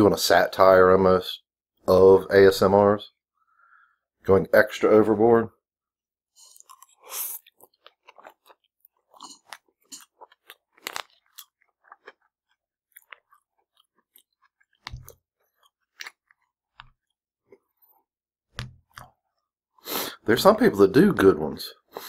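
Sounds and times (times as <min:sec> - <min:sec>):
wet chewing and mouth clicks: 0:06.4 - 0:19.5.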